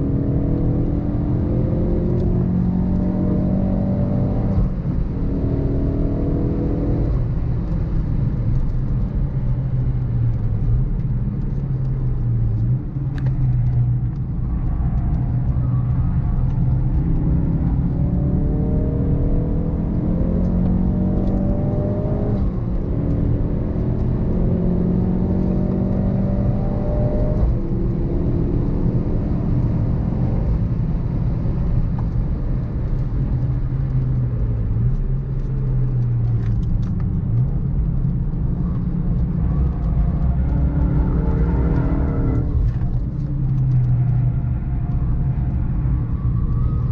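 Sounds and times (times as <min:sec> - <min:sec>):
car engine revving through gears: 0:00.0 - 0:08.8, 0:15.6 - 0:32.3, 0:36.0 - 0:44.5.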